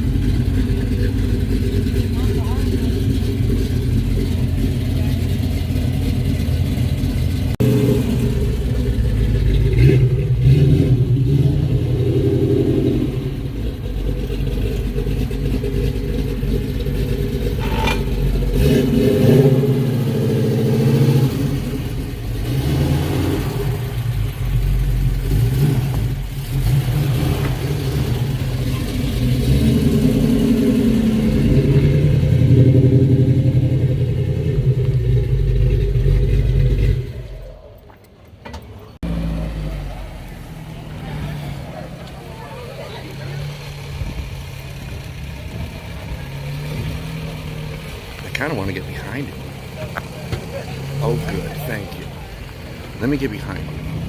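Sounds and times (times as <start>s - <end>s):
car engine revving: 0.0s - 38.0s, 38.7s - 54.0s.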